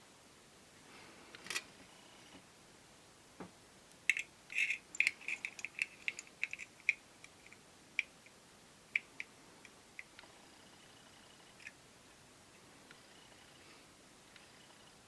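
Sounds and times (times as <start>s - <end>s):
small hard parts clicking: 3.9s - 10.3s.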